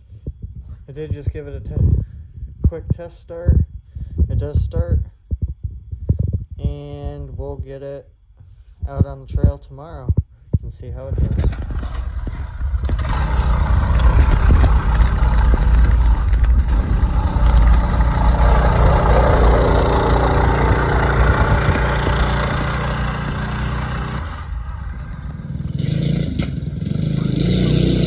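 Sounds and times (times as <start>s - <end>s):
mini bike engine running: 11.4s - 28.0s.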